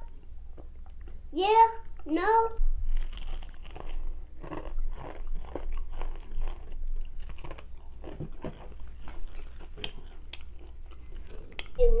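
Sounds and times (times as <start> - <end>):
chewing food: 2.9 - 12.0.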